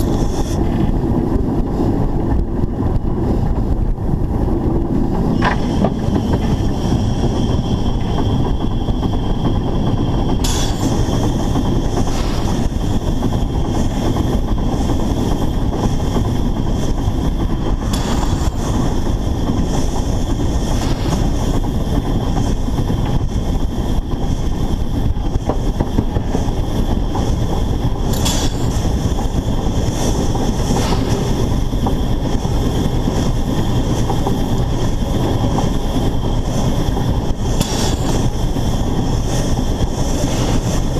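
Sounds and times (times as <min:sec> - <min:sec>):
steam locomotive running gear rumble: 0:00.0 - 0:40.9
sharp clacks: 0:37.5 - 0:38.5.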